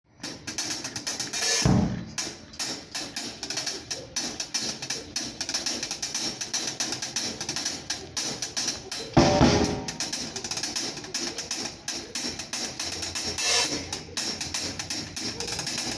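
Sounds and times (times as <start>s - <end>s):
drum kit groove: 0.1s - 15.9s
heavy accented drum hits: 1.6s - 2.2s, 9.2s - 10.2s.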